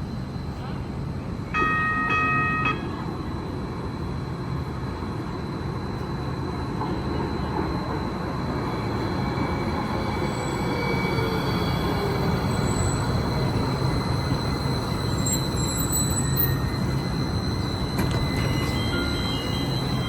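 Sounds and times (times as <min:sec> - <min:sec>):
rail car rumble: 0:00.0 - 0:20.0
electronic tone: 0:10.6 - 0:20.0.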